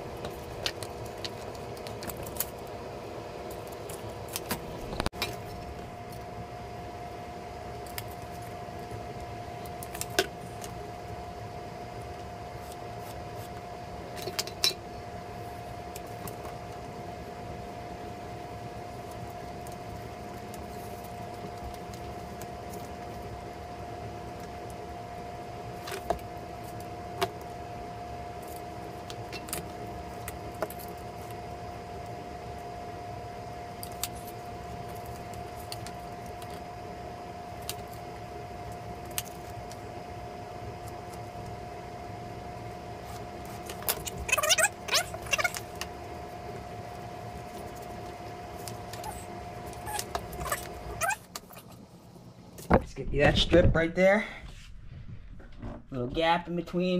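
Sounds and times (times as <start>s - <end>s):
room hum with thin tone: 0.0s - 56.9s.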